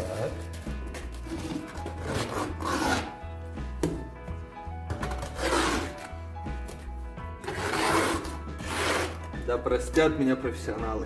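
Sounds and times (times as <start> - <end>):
trowel scraping tile adhesive: 0.0 - 3.1, 5.0 - 6.1, 7.4 - 9.4
background music: 0.0 - 11.0.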